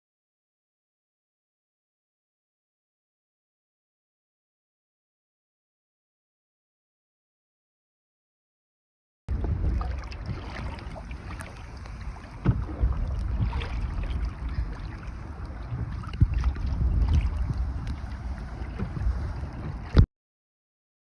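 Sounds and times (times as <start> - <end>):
paddle splashes: 9.3 - 20.1
wind buffeting microphone: 9.3 - 20.1.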